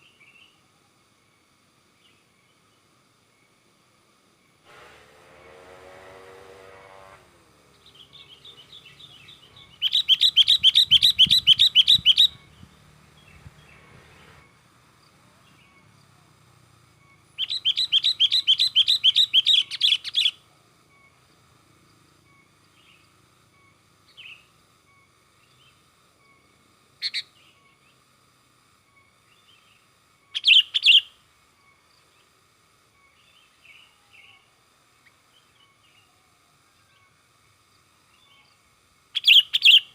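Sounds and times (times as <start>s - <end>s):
short bird calls: 7.7s - 14.6s, 17.4s - 20.4s, 39.2s - 39.9s.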